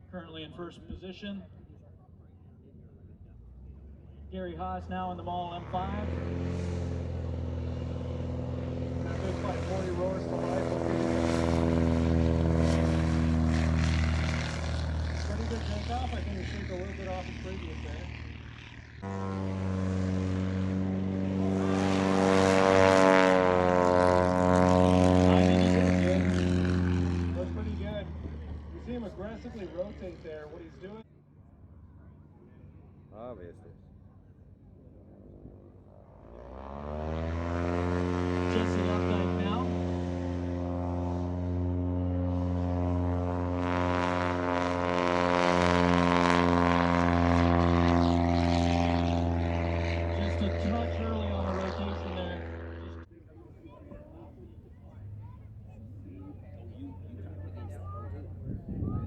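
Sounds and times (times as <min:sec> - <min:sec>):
propeller plane engine drone: 0:00.0 - 0:59.0.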